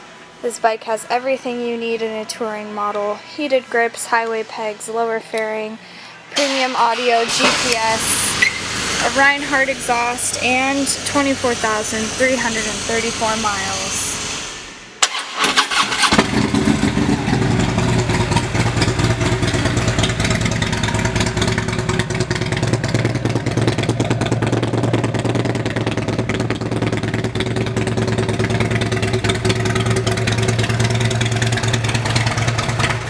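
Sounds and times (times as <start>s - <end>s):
motorcycle engine cranking: 7.3s - 33.0s
motorcycle engine idling: 7.6s - 14.4s, 15.7s - 33.0s
motorcycle starter click: 15.0s - 17.1s.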